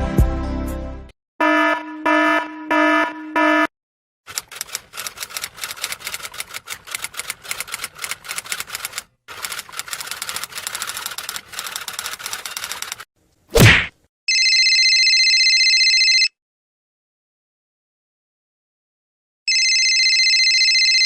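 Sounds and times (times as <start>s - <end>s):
typewriter keys clattering: 4.3s - 13.1s.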